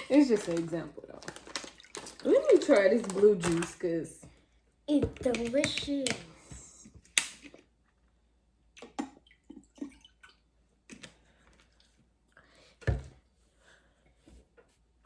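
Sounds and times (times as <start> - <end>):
person gulping: 8.8 - 11.2.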